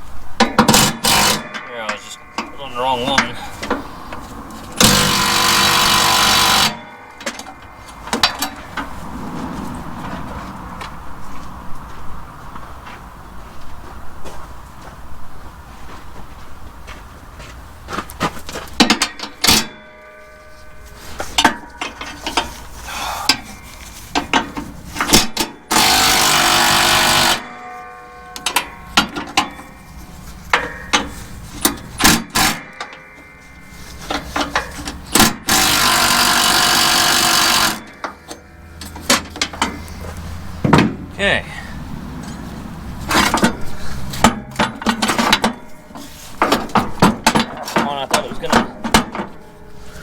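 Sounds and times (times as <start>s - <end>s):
tools clanking on metal: 0.4s - 9.2s, 17.9s - 41.1s, 42.1s - 50.0s
power tool running: 0.7s - 1.6s, 4.7s - 8.7s, 25.0s - 27.7s, 34.0s - 40.3s.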